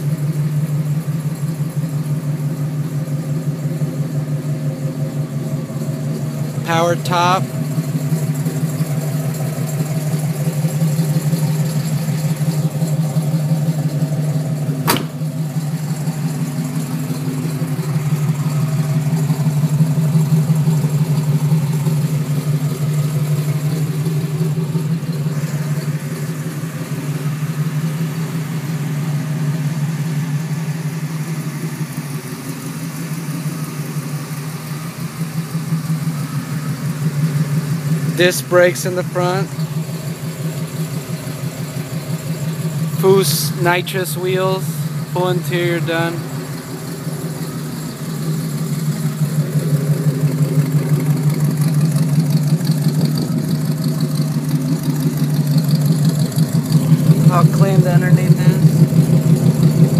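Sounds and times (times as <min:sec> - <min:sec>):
vee eight engine idling: 0:00.0 - 0:59.9
sharp click: 0:14.9 - 0:15.2.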